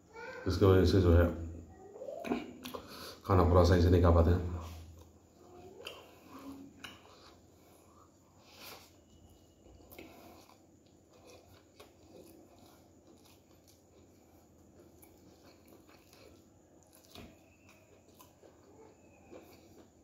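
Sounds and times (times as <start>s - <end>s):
man chewing food: 4.8s - 20.0s.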